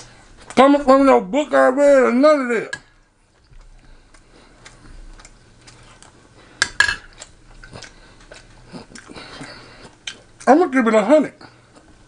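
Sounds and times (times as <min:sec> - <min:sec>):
chewing with mouth closed: 0:03.3 - 0:10.5.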